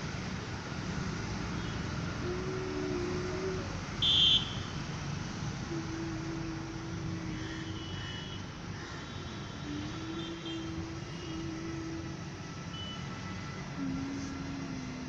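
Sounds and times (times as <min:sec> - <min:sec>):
road traffic rumble: 0:00.0 - 0:15.0
long held tone: 0:02.2 - 0:04.4, 0:05.7 - 0:08.0, 0:09.7 - 0:15.0.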